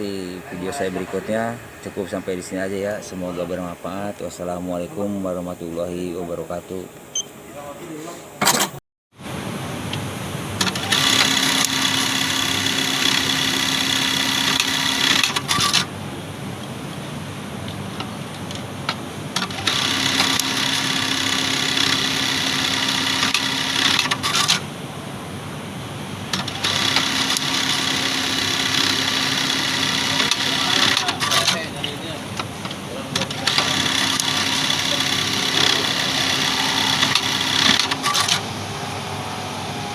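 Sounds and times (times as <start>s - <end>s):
sewing machine stitching: 10.6s - 15.8s, 19.4s - 24.6s, 26.3s - 31.7s, 33.2s - 38.4s.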